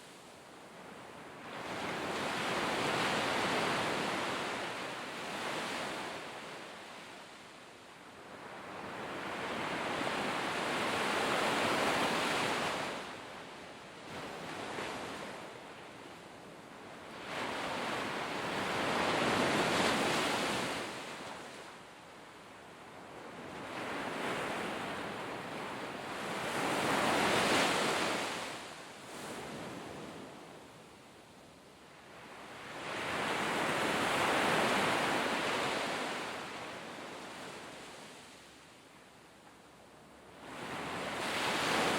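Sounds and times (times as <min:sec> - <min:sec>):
sea waves breaking on shore: 0:23.3 - 0:30.4, 0:32.2 - 0:38.6, 0:40.4 - 0:41.9.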